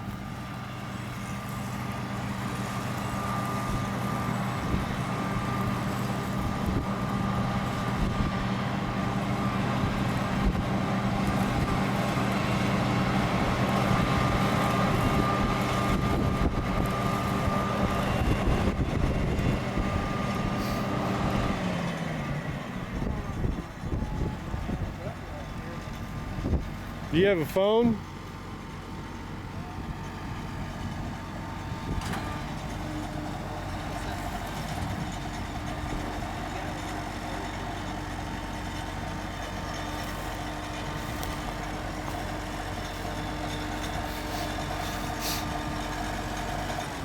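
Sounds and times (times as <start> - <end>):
large diesel engine running: 0.0 - 47.0.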